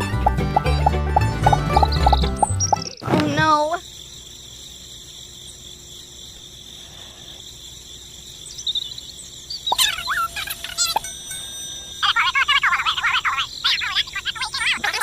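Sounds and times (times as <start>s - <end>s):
insect chirring: 0.2s - 15.0s
sharp high chirps and whistles: 8.5s - 14.2s.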